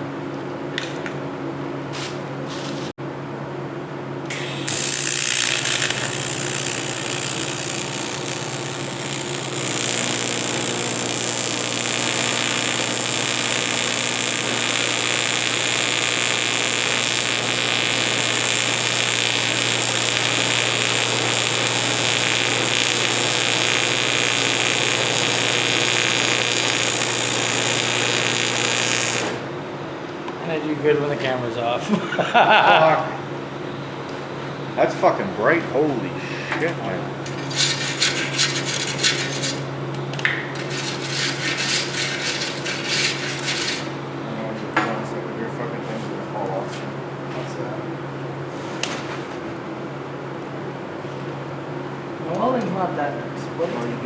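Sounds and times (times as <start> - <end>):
arc welding hiss: 4.3 - 29.5.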